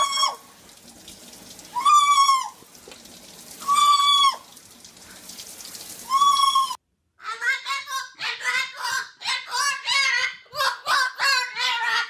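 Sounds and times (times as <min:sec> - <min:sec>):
bird calling: 0:06.0 - 0:06.8.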